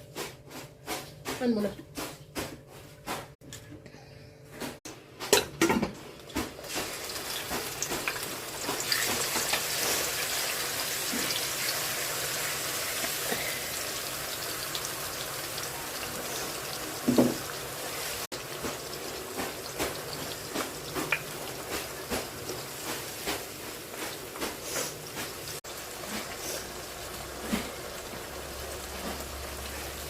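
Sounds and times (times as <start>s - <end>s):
water running from a tap: 6.6s - 23.4s, 24.0s - 30.0s.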